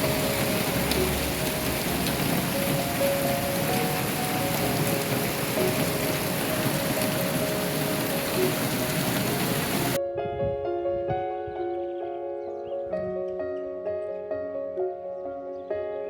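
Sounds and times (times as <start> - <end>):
heavy rain: 0.0 - 10.0
soft music: 0.0 - 16.0.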